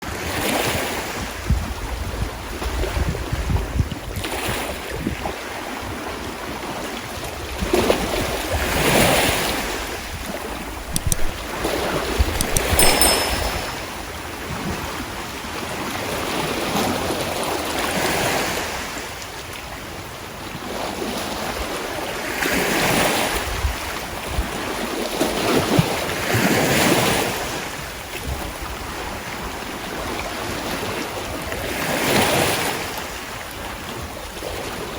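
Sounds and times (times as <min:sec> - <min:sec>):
sharp clicks: 0:11.0 - 0:11.4, 0:12.4 - 0:13.7.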